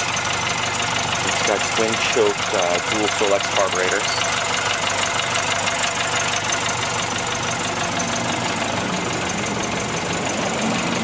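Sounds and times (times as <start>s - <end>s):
car engine idling: 0.0s - 11.0s
fast even engine ticking: 0.0s - 11.0s.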